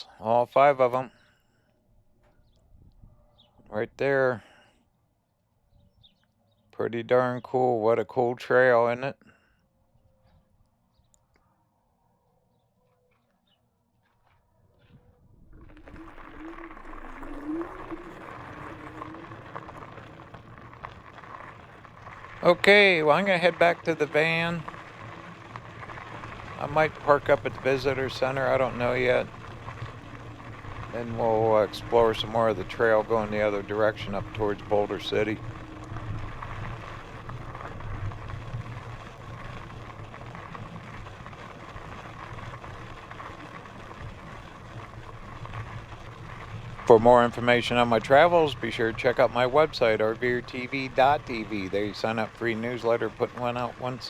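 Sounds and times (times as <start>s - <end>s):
e-bike riding rumble: 12.5s - 54.0s
wind rush and tyre noise: 14.8s - 54.0s
electric motor hum: 15.5s - 22.8s, 23.5s - 46.9s.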